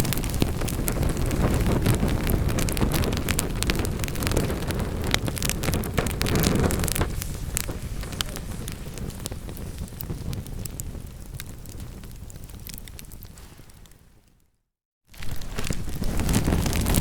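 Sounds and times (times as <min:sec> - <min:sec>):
burning wood crackling and popping: 0:00.0 - 0:14.4, 0:15.1 - 0:17.0
low rumble of flames: 0:00.0 - 0:14.4, 0:15.1 - 0:17.0.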